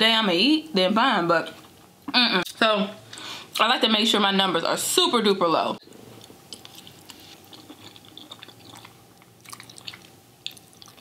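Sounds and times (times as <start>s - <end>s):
person chewing noodles: 5.8s - 11.0s.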